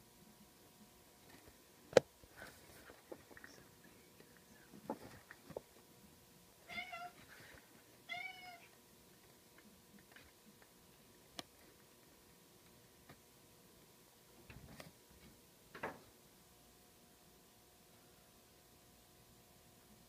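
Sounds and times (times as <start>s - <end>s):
faint clicks and taps: 1.2s - 5.8s, 8.7s - 13.2s.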